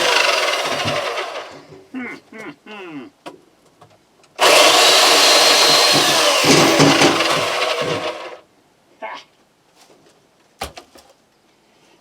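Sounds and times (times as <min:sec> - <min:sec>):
power saw cutting wood: 0:00.0 - 0:01.6, 0:04.4 - 0:08.4.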